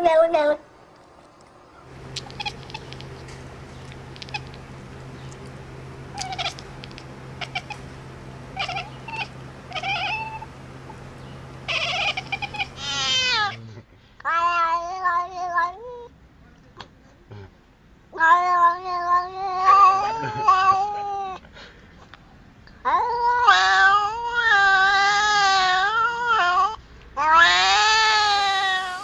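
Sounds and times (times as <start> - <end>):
low hum: 1.8 - 13.8
cat meowing: 1.9 - 13.6.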